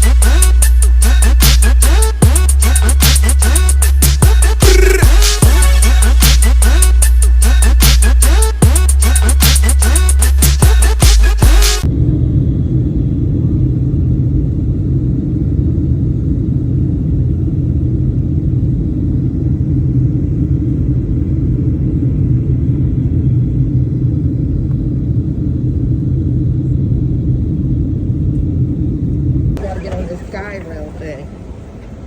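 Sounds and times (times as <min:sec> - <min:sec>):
electronic music: 0:00.0 - 0:11.9
car road and engine rumble: 0:11.9 - 0:32.0.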